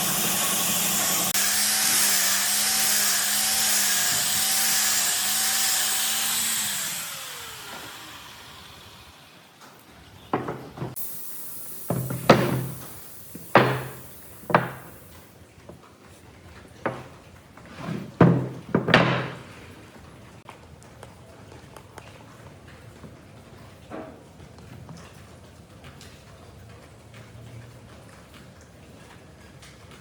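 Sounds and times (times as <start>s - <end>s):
power tool running: 0.0s - 9.7s, 11.7s - 15.2s
sharp knocks: 11.9s - 15.0s.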